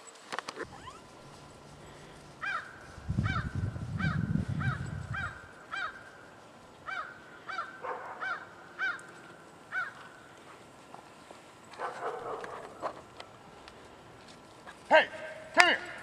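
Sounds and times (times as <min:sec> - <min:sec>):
low rumble: 0:01.0 - 0:05.5
bird cawing: 0:02.4 - 0:10.4.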